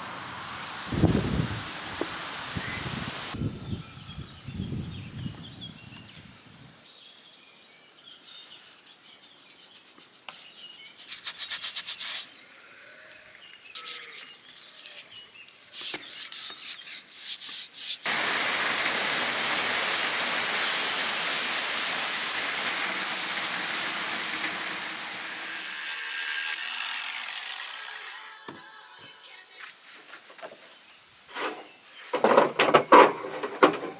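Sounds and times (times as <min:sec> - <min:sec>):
birds chirping: 0:02.2 - 0:11.2
wood rasping strokes: 0:13.8 - 0:18.1, 0:24.1 - 0:28.2.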